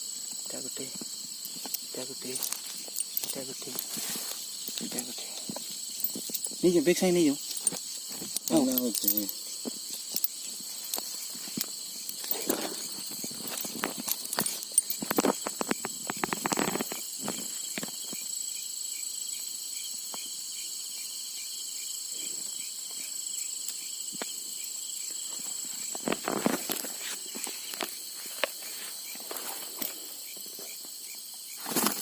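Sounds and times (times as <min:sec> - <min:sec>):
night insects chirring: 0:00.0 - 0:32.0
footsteps: 0:00.9 - 0:17.5, 0:25.3 - 0:30.8
knocks and rustles: 0:07.4 - 0:18.2.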